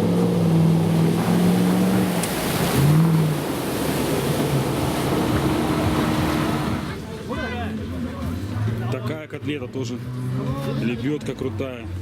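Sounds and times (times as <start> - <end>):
vehicle engine revving: 0.0 - 7.0
water splashing: 0.0 - 8.0.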